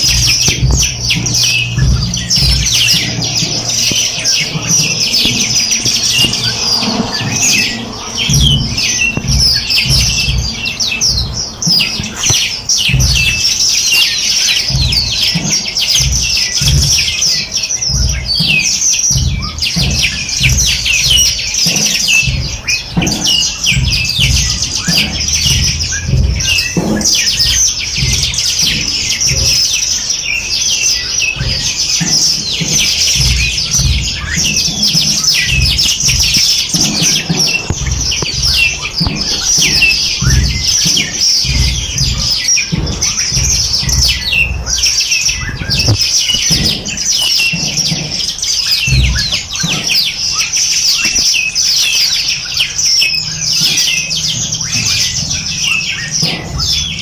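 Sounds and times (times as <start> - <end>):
low irregular rumbles: 0.0 - 13.7, 30.8 - 50.3
small birds chirping in chorus: 0.0 - 57.0.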